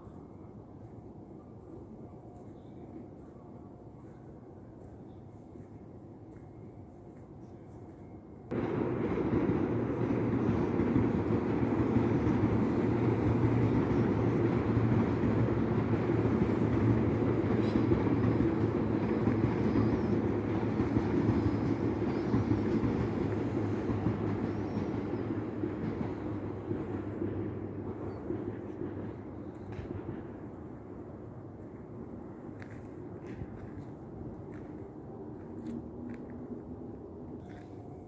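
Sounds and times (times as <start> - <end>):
electric train rumbling past: 8.0 - 38.0.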